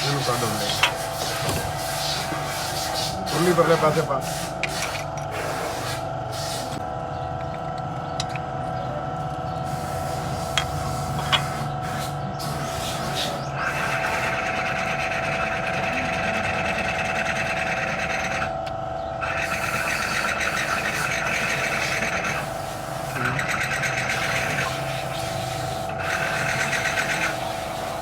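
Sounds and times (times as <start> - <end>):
workshop hum: 0.0 - 28.0
small power tool whirring: 9.6 - 28.0.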